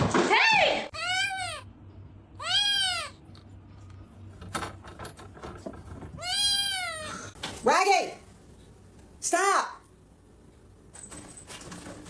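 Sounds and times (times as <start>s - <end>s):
cat meowing: 0.9s - 1.7s, 2.4s - 3.2s, 6.2s - 7.3s.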